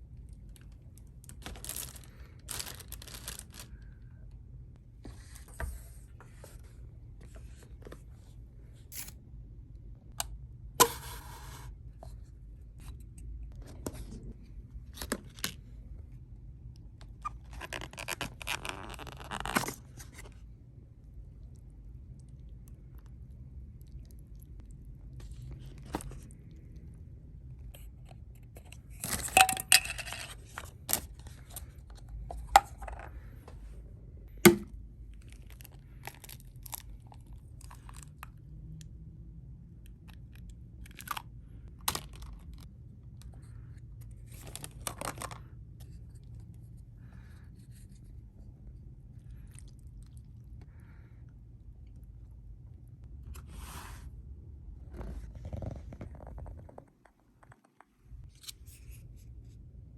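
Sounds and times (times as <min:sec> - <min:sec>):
packaging rustling and tearing: 0:01.3 - 0:03.8.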